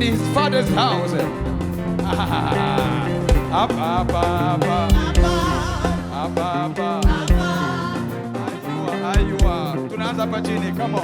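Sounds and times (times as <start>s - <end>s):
live band playing: 0.0s - 11.0s
voices singing: 0.0s - 11.0s
heavy drum hits: 0.7s - 7.5s.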